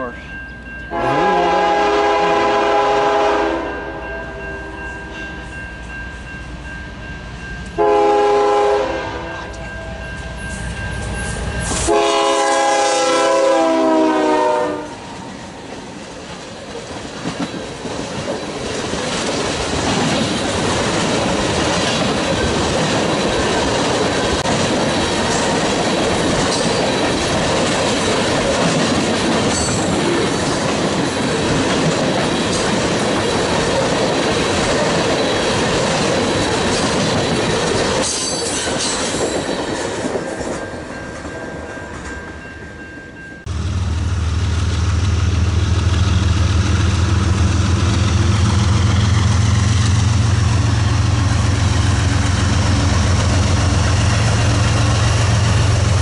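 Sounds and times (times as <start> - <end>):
locomotive air horn blasts: 0.9 - 4.4, 7.8 - 9.5, 11.8 - 15.0
train wheels clacking over rail joints: 16.2 - 40.6.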